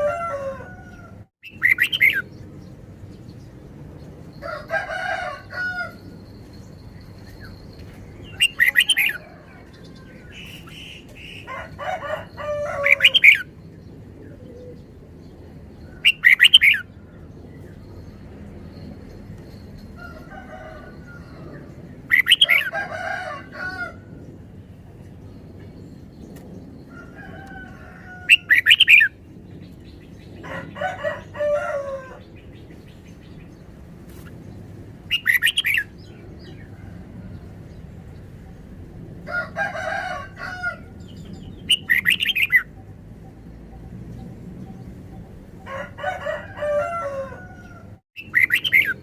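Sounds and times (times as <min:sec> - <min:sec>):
bird singing warbling phrases: 0:01.4 - 0:02.3, 0:08.4 - 0:09.2, 0:16.0 - 0:16.9, 0:22.1 - 0:22.6, 0:35.1 - 0:35.9, 0:41.3 - 0:42.7, 0:48.2 - 0:49.0.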